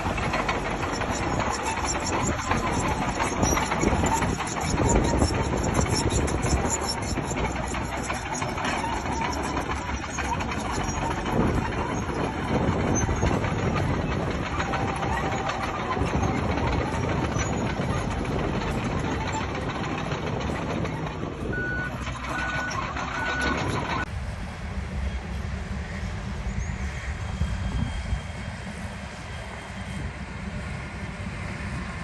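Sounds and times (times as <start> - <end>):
diesel engine running under load: 0.0 - 32.0
reversing beeps: 21.5 - 24.0.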